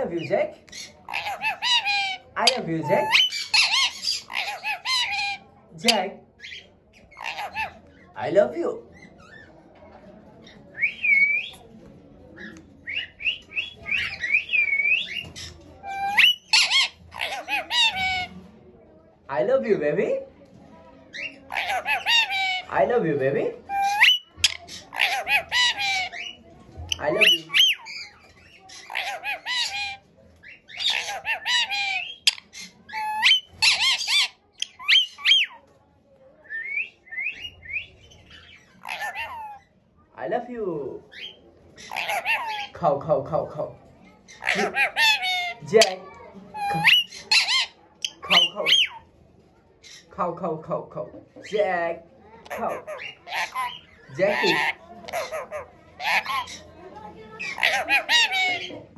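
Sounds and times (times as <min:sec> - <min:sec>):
parrot squawks and chirps: 0:00.6 - 0:08.1, 0:12.4 - 0:18.4, 0:21.1 - 0:22.8, 0:23.6 - 0:35.6, 0:36.4 - 0:39.7, 0:41.1 - 0:42.8, 0:44.2 - 0:49.1, 0:52.4 - 0:56.7, 0:57.3 - 0:58.9.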